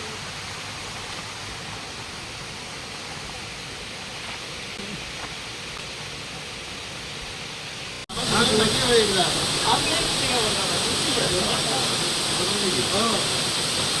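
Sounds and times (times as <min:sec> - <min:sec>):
waterfall rushing: 0:08.1 - 0:14.0.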